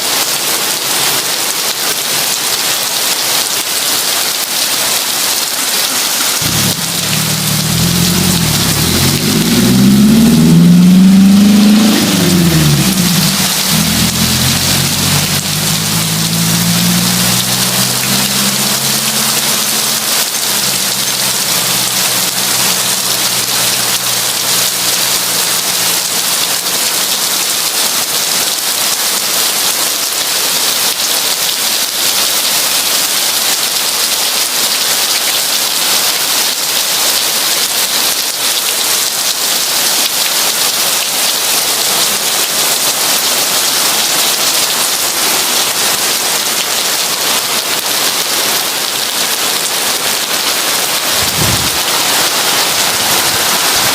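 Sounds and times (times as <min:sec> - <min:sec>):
heavy rain pouring: 0:00.0 - 0:53.9
low rumble: 0:06.4 - 0:25.0, 0:51.2 - 0:53.9.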